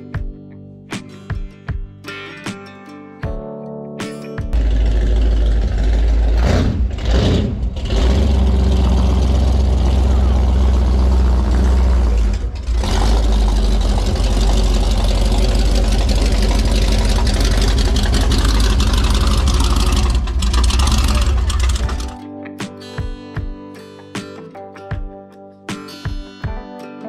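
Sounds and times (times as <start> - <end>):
car engine with deep exhaust: 4.6 - 22.2.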